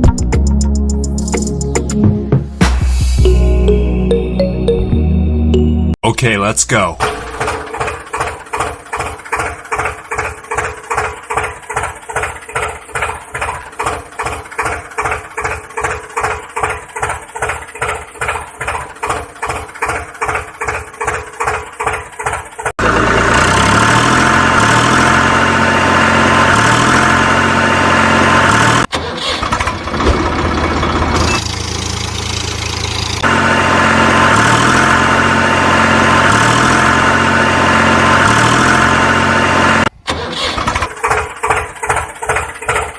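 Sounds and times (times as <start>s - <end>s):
engine chugging: 6.9s - 42.9s.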